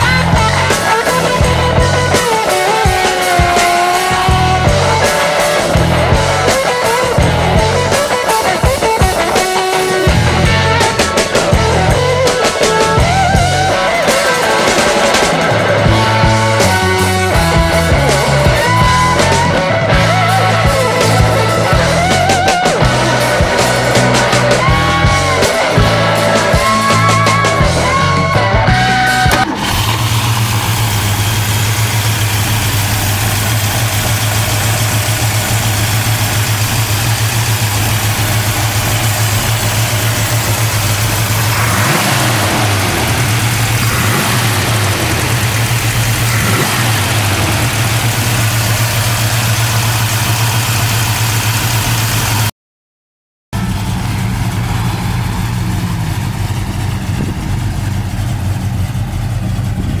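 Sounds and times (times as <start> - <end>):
car engine idling and revving: 0.0 - 52.5, 53.6 - 60.0.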